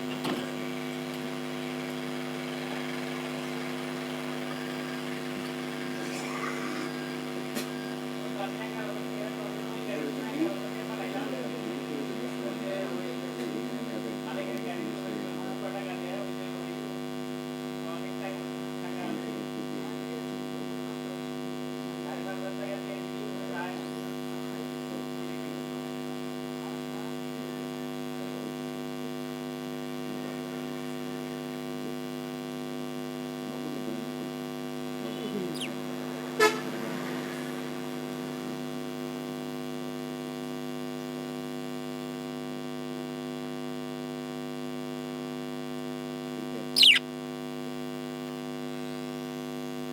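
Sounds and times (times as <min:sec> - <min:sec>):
electrical hum: 0:00.0 - 0:13.8, 0:34.9 - 0:39.0, 0:46.7 - 0:47.0
faint short chirps: 0:35.6 - 0:35.8, 0:46.8 - 0:47.0.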